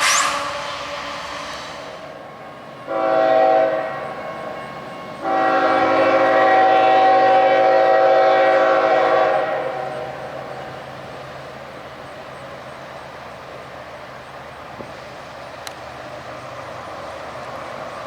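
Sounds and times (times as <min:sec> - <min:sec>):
locomotive air horn blasts: 0:02.9 - 0:04.0, 0:05.2 - 0:10.1.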